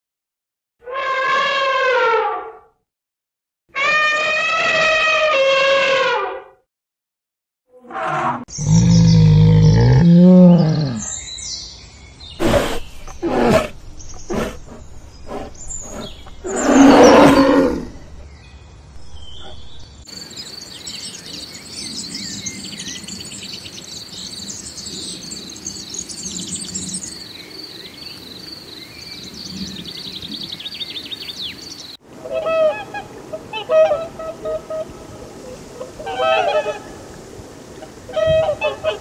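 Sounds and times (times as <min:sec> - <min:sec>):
bear roaring: 0:07.8 - 0:11.2, 0:12.4 - 0:18.0
birds chirping and trilling: 0:08.4 - 0:33.0
bear grunting: 0:08.6 - 0:11.1, 0:12.4 - 0:18.0.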